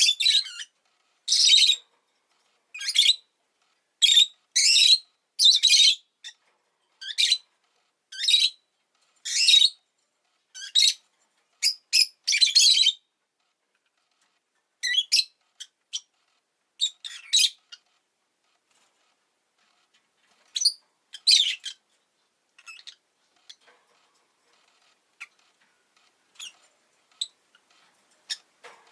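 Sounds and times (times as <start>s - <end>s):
lovebird shrill chirps: 1.3s - 1.8s, 4.0s - 6.4s, 9.2s - 9.8s, 14.8s - 16.1s, 20.5s - 21.8s.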